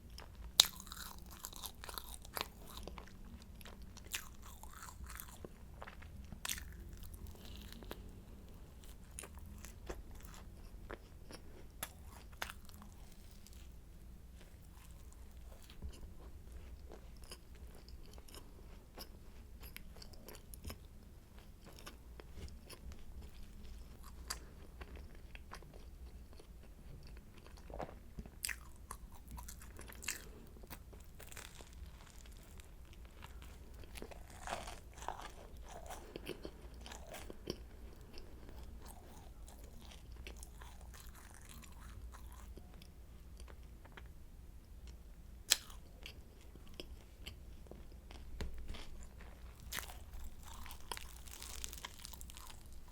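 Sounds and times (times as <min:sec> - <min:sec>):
soft chewing: 0:00.0 - 0:44.2, 0:44.8 - 0:52.9
pastry crackling and crunching: 0:00.1 - 0:20.9, 0:26.4 - 0:43.6, 0:45.5 - 0:52.9.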